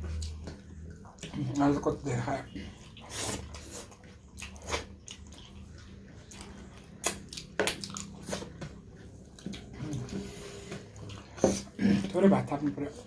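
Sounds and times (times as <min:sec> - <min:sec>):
wet chewing and mouth smacks: 0:00.0 - 0:01.8, 0:02.5 - 0:10.2.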